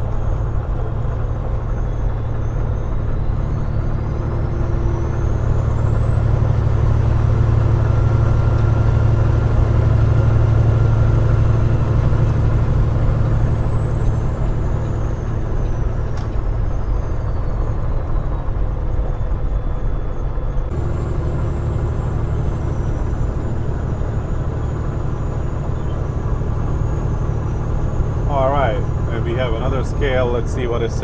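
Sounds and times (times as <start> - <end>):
road noise: 0.0 - 31.0
truck engine drone: 0.0 - 31.0
faint whine: 19.9 - 31.0.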